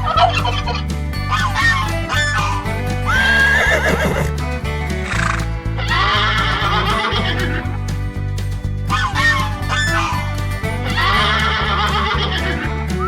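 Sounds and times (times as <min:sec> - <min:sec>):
music with bass beat: 0:00.0 - 0:13.0
horse whinnying: 0:01.3 - 0:07.9.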